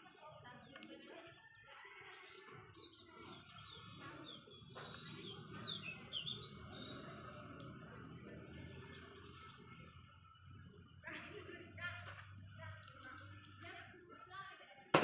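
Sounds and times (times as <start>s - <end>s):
bird chirping: 2.2s - 11.3s.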